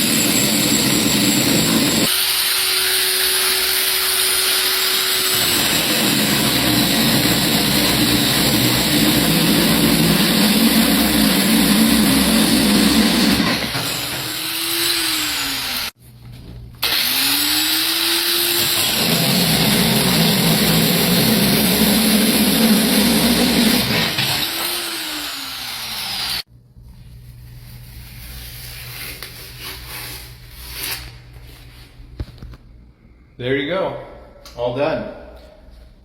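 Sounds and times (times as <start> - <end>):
grinder coring through stone: 0.0 - 16.0, 16.8 - 26.4.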